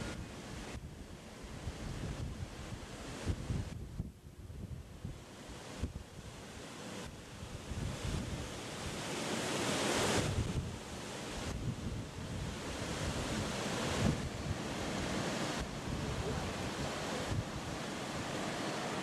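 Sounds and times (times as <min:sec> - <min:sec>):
blizzard wind roaring: 0:00.0 - 0:19.0.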